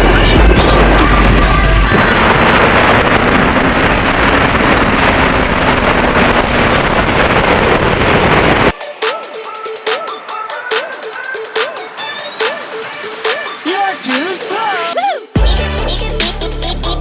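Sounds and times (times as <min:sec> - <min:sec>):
motorcycle running: 0:00.0 - 0:08.7
wind rush on microphone: 0:00.0 - 0:08.8.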